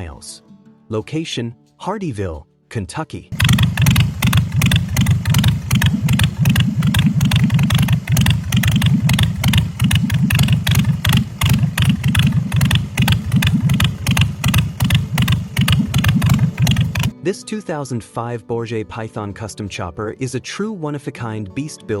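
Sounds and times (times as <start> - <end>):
motorcycle engine running loud: 3.4 - 17.1.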